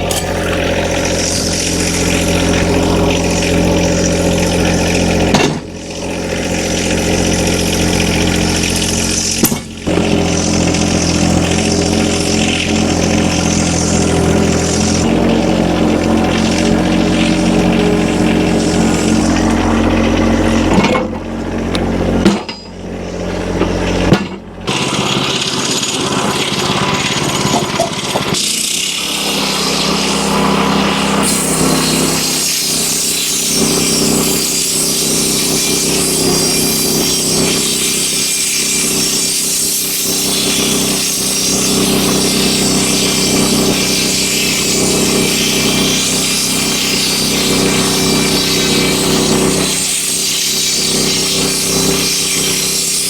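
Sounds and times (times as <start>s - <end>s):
band saw cutting wood: 0.0s - 53.0s
engine running: 0.0s - 53.0s
sharp knocks: 9.4s - 10.1s, 22.2s - 22.8s.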